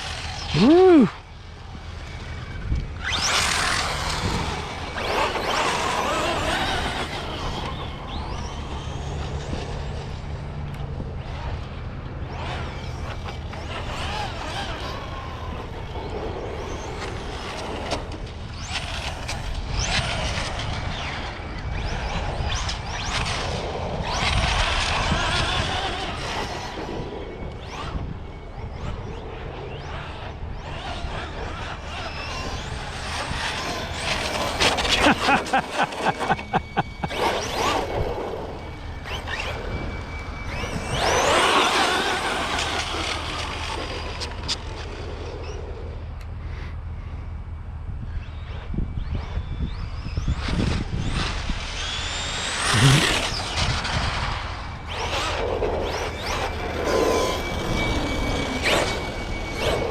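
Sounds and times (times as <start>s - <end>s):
electric rc car motors whining: 0.0s - 59.9s
sharp pulses: 52.0s - 53.9s.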